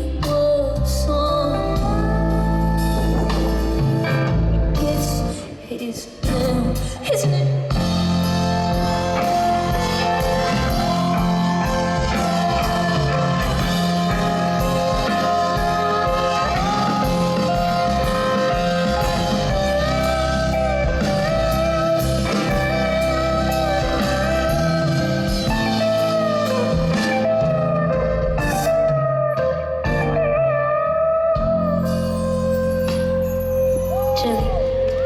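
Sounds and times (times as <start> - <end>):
steady bass line: 0.0 - 5.4, 7.7 - 35.0
guitar with sliding notes: 7.7 - 35.0.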